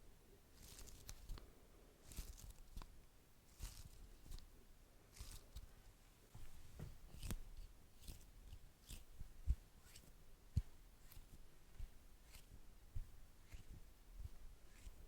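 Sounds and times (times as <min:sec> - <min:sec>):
wax wrap crinkling: 0:00.6 - 0:01.4, 0:02.0 - 0:04.5, 0:05.1 - 0:05.7
soft taps: 0:06.3 - 0:07.3.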